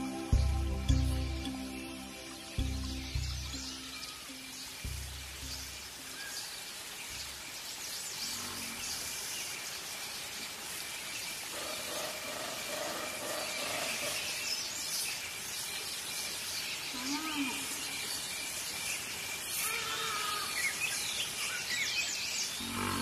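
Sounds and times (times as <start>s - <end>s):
birds chirping and calling: 0.0s - 9.6s, 11.4s - 23.0s.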